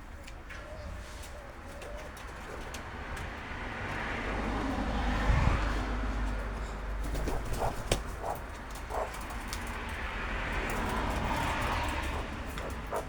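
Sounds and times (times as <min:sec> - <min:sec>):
road vehicle passing: 0:00.8 - 0:13.0.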